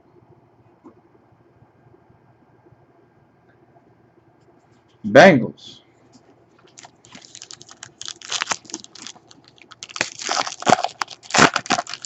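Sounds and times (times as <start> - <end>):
foil wrapper crinkling and tearing: 6.6 - 12.0.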